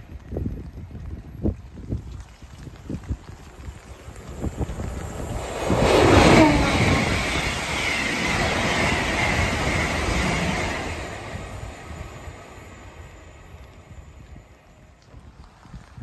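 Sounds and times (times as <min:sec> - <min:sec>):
high-speed train passing: 0:02.7 - 0:15.6
train wheels rushing on rails: 0:03.0 - 0:15.6.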